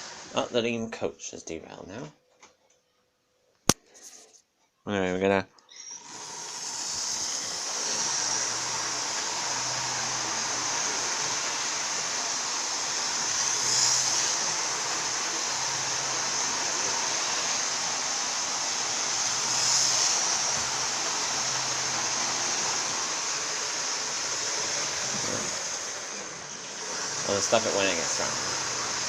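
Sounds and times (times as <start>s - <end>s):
model train whirring rattle: 5.8s - 29.0s.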